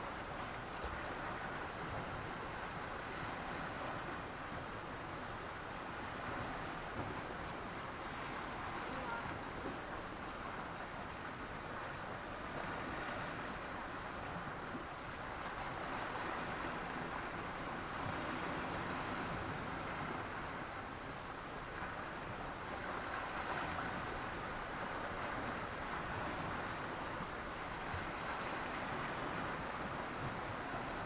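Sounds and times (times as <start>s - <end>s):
sea waves washing onto beach: 0.0s - 31.0s.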